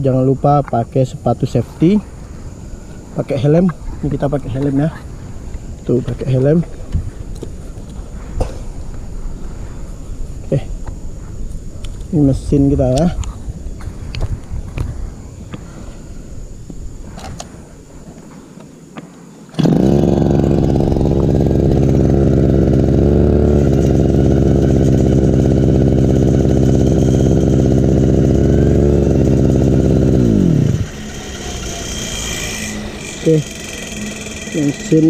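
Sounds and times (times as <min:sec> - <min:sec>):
brush cutter engine running: 0:19.5 - 0:35.0.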